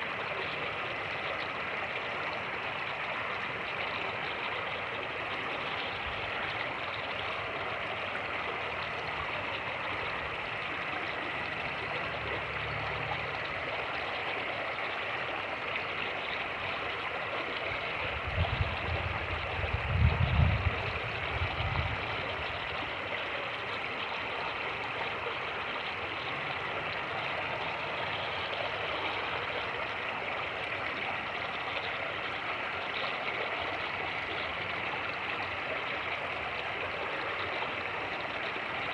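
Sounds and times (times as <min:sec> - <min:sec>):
wind buffeting microphone: 0:18.0 - 0:22.6.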